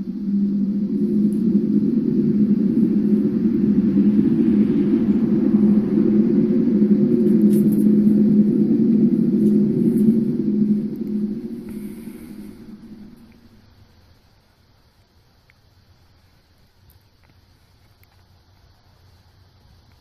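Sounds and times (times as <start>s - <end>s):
deep droning hum from the sky: 0.0s - 20.0s.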